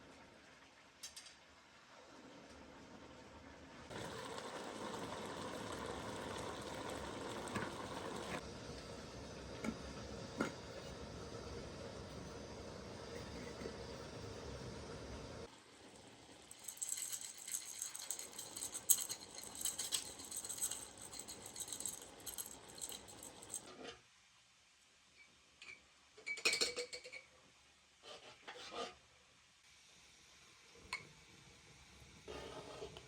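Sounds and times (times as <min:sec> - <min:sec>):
small hard objects rattling: 0:16.5 - 0:23.7.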